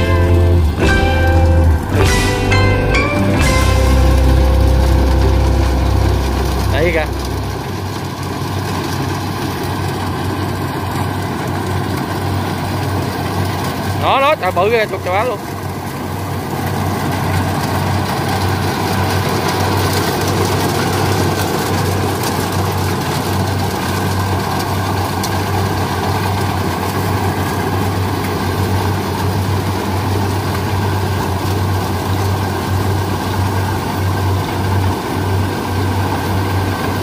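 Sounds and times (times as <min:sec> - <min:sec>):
diesel engine drone: 0:00.0 - 0:37.0.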